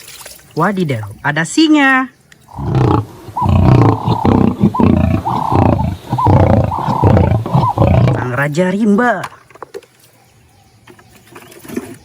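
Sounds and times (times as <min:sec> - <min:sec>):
lion roaring: 0:02.5 - 0:08.5.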